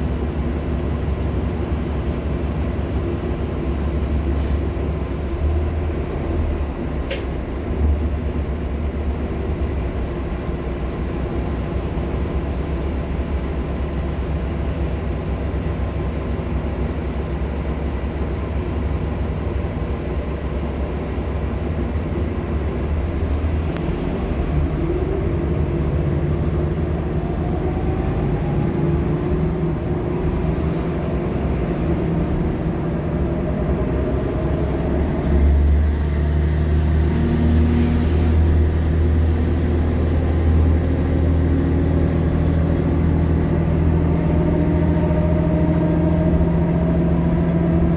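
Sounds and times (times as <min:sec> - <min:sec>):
bus drivetrain rumble: 0:00.0 - 0:47.9.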